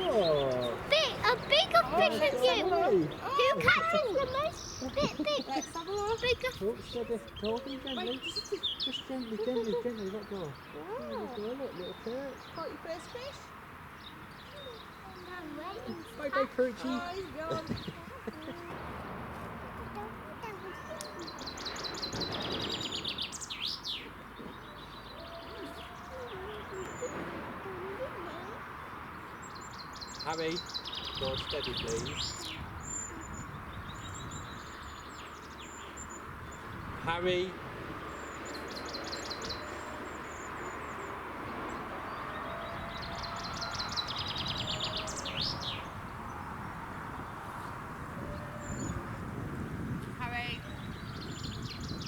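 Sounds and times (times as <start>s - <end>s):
outdoor background hiss: 0.0s - 52.0s
songbird singing: 0.0s - 52.0s.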